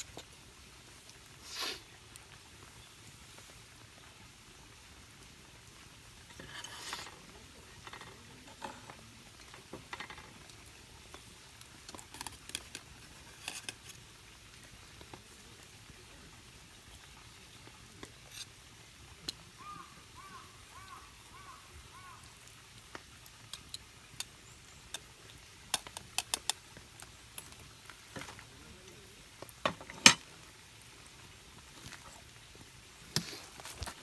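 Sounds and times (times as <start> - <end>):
faint sizzle: 0.0 - 34.0
utensils clinking on cookware: 29.7 - 30.3.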